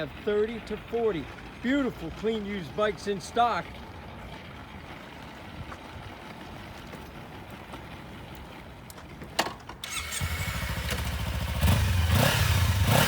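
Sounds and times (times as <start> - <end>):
motorcycle engine starting and idling: 3.5 - 13.0.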